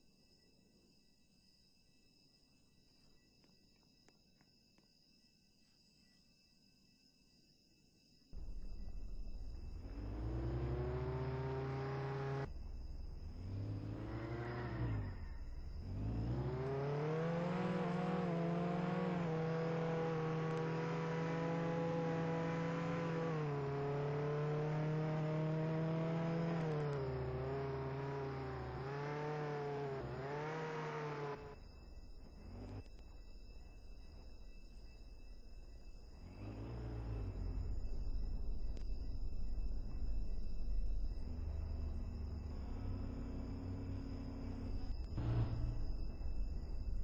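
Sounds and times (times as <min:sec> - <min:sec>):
car engine revving: 0:08.4 - 0:31.6, 0:32.2 - 0:32.9, 0:36.2 - 0:47.0.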